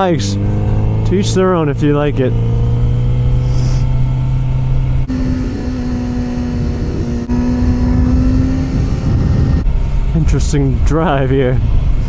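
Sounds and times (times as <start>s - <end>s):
motorcycle engine running: 0.0s - 12.0s
wind rumble on microphone: 2.8s - 12.0s.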